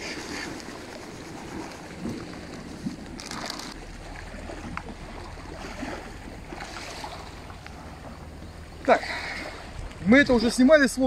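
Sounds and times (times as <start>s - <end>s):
dry bait rustling from packet: 3.2s - 3.8s.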